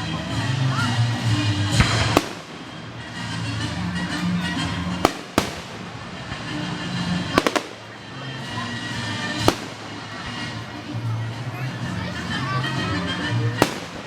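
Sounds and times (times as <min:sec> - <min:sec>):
fireworks crackle: 0:01.0 - 0:10.9, 0:13.4 - 0:14.0
fireworks bangs: 0:01.2 - 0:10.7, 0:13.6 - 0:14.0.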